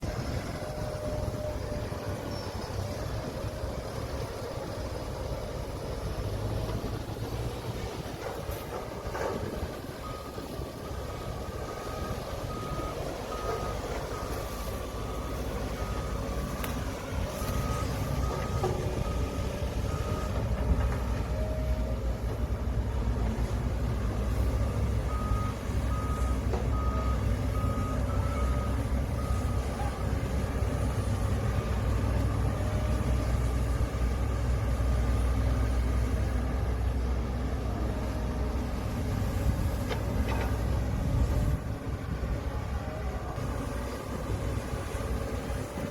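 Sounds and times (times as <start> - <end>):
heavy diesel machinery rumbling: 0.0 - 45.9
reversing alarm beeping: 8.4 - 22.5, 23.7 - 33.2.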